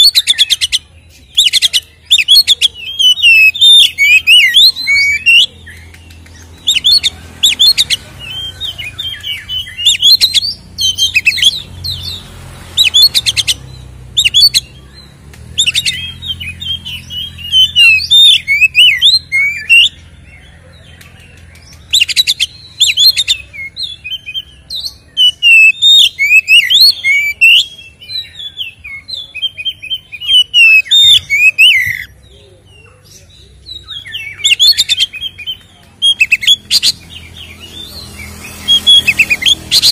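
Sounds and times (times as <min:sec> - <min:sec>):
songbird whistling and trilling: 0:00.0 - 0:32.2, 0:33.3 - 0:39.9.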